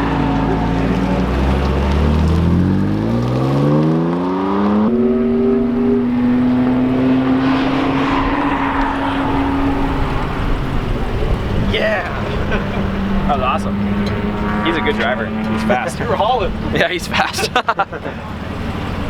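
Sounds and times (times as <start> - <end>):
car engine accelerating hard: 0.0 - 19.0
rushing noise: 4.9 - 14.3.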